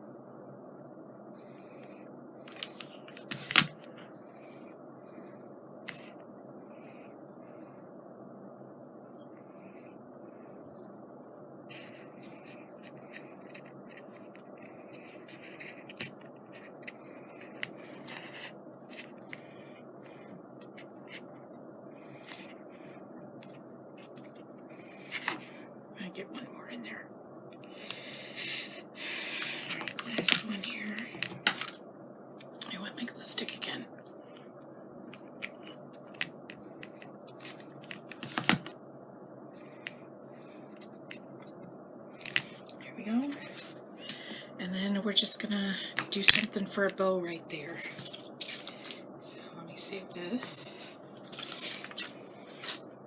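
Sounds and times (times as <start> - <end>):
faint background hiss: 0.0 - 53.0
scratching and rubbing on paper: 11.7 - 19.2, 51.2 - 52.8.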